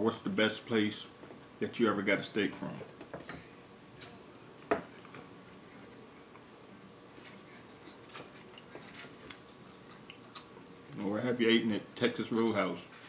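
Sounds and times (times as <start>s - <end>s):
man chewing: 3.5s - 11.1s.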